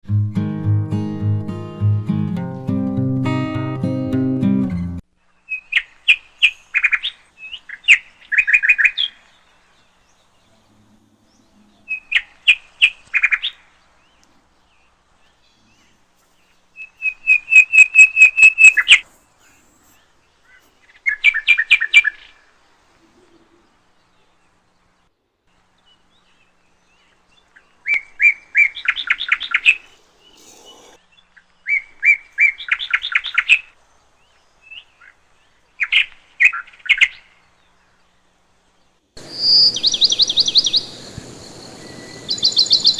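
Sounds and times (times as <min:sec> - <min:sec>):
small bird chirping: 0:05.3 - 0:22.4, 0:26.0 - 0:38.0, 0:39.2 - 0:42.9.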